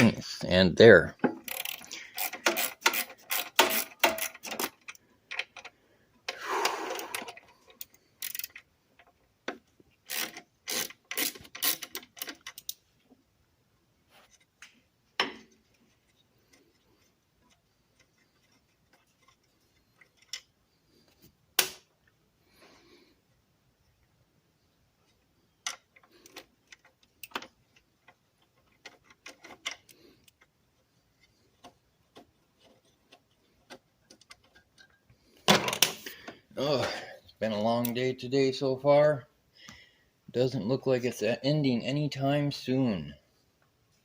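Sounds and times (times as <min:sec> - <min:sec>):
socket ratchet clicking: 0:01.4 - 0:05.6, 0:07.8 - 0:08.6, 0:10.1 - 0:12.8.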